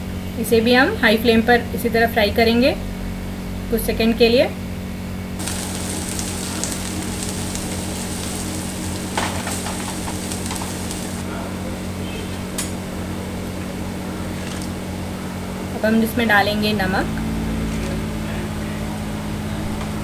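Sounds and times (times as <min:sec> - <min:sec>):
vegetables sizzling in hot oil: 0:05.4 - 0:11.3.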